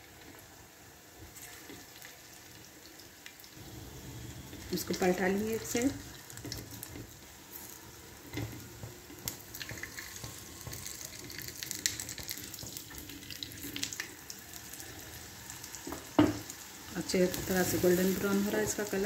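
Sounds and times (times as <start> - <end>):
bread sizzling in oil: 0.0 - 19.0
oil crackling: 4.4 - 19.0.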